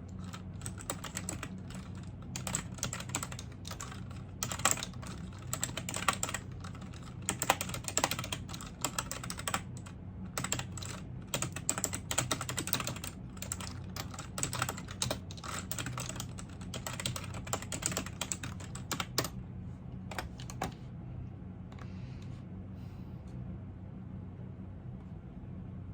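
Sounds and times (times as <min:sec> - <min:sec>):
typing on a computer keyboard: 0:00.0 - 0:19.4, 0:20.1 - 0:20.8
low steady hum: 0:00.0 - 0:25.9.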